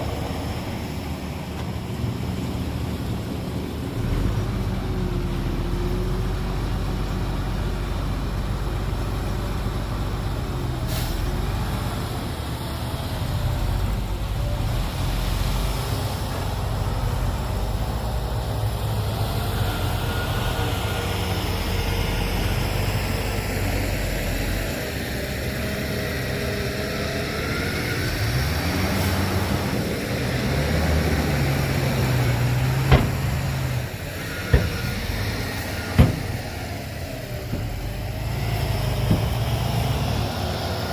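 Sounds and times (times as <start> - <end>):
heavy diesel machinery rumbling: 0.0 - 40.9.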